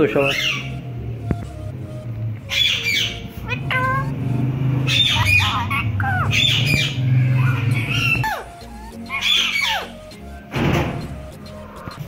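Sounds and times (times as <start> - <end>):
parrots squawking: 0.0 - 1.0, 2.4 - 10.4
parrot whistled calls: 0.2 - 0.8, 2.5 - 4.1, 4.8 - 10.4.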